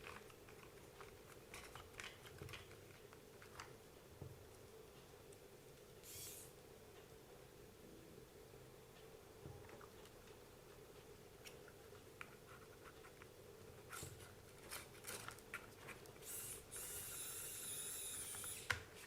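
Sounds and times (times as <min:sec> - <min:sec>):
small parts clicking and tapping: 0:00.0 - 0:03.7
screwdriver whirring: 0:06.0 - 0:06.5, 0:16.2 - 0:18.8.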